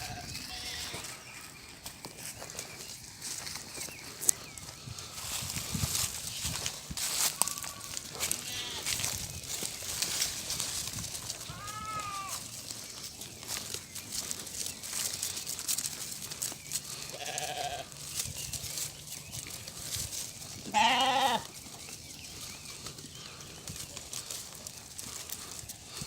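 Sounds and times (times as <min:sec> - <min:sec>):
sheep bleating: 0:00.0 - 0:01.2, 0:07.4 - 0:09.0, 0:11.4 - 0:12.5, 0:17.1 - 0:17.9, 0:20.7 - 0:21.5
leaves and twigs rustling: 0:00.0 - 0:26.0.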